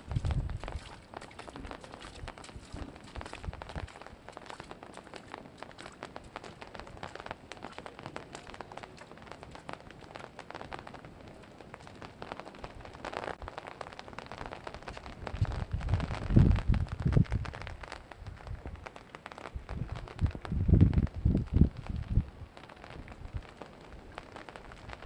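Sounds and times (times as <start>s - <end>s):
water flowing at dam: 0.0s - 15.2s.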